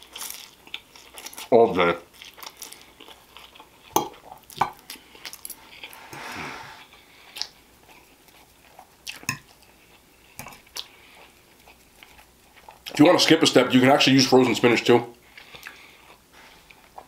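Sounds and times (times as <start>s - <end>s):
soft drawn-out noisy sound: 2.0s - 17.0s
wet chewing and mouth smacks: 6.9s - 13.0s, 15.3s - 17.0s.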